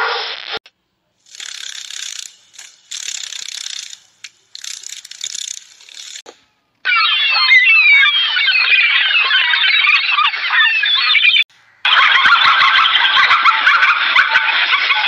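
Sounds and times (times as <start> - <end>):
dragonfly wings rattling: 1.2 - 6.3.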